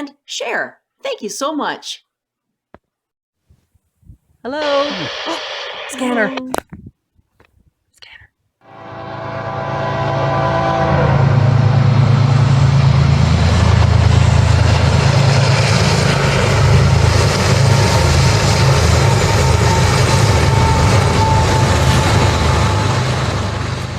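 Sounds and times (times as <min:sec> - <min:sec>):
diesel locomotive engines droning: 0:08.6 - 0:23.9.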